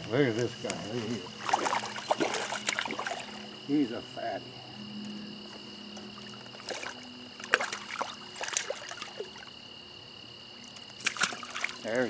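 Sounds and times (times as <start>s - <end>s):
stream water running: 0.0s - 12.0s
small sharp splashes: 1.1s - 3.4s, 6.2s - 9.5s, 10.6s - 12.0s.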